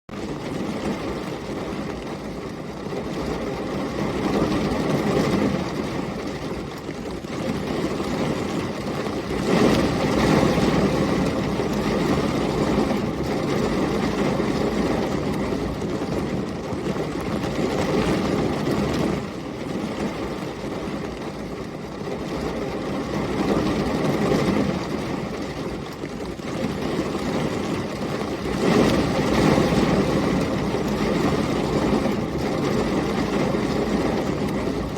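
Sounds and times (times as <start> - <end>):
heavy rain: 0.1 - 34.9
storm wind gusting: 7.5 - 21.0, 26.6 - 34.9.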